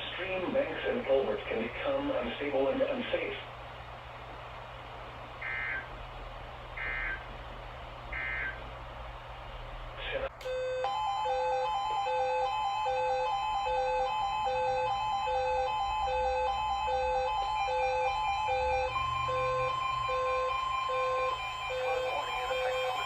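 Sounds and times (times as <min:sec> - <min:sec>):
emergency alert tones: 0:10.4 - 0:23.0.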